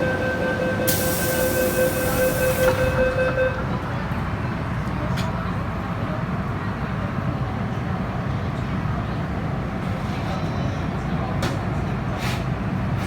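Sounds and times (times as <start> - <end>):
train door warning tone: 0.0 - 4.0
train rumble: 0.0 - 10.6.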